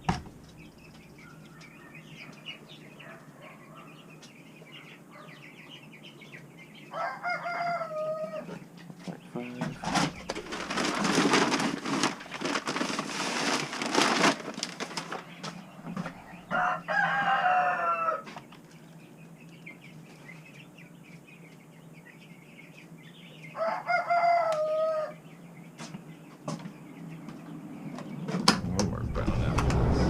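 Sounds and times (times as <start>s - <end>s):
rooster crowing: 6.9s - 8.5s, 16.3s - 18.3s, 23.6s - 25.2s
noisy rustling: 9.7s - 16.6s.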